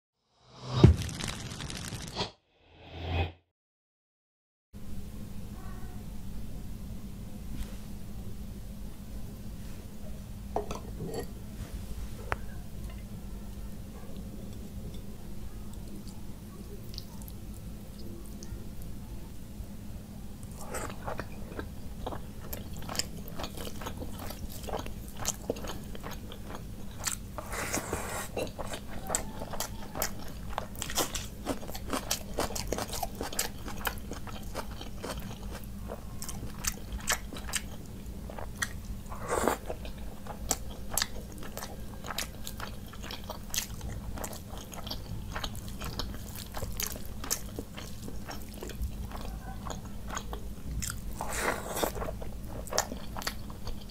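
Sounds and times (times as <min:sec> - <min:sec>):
steady low hum: 0:04.8 - 0:53.9
person chewing and crunching food: 0:20.4 - 0:53.9.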